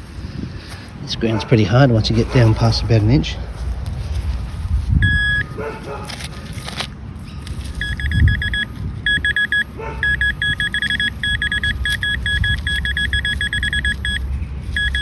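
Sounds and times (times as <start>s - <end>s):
digging rumble: 0.0s - 15.0s
metal detector beeping: 5.0s - 5.5s, 7.8s - 15.0s.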